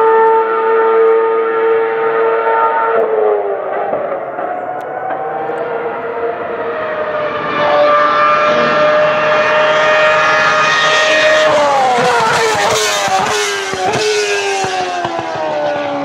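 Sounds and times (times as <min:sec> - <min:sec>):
racing car engine at high revs: 0:00.0 - 0:16.0.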